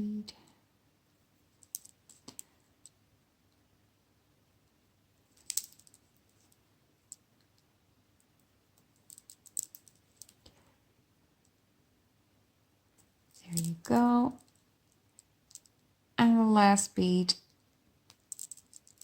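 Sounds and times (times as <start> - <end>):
beads clicking together: 1.6 - 3.0, 5.3 - 7.7, 8.3 - 10.5, 13.3 - 15.9, 18.1 - 19.0.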